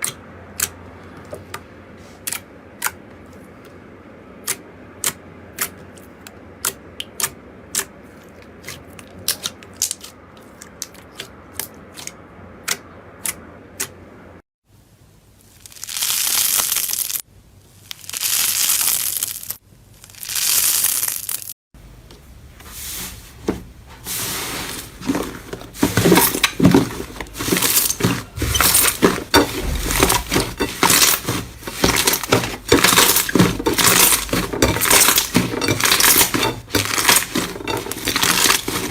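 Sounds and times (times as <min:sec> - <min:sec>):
slime crackling: 0:17.8 - 0:21.5
slime hissing: 0:17.9 - 0:21.5.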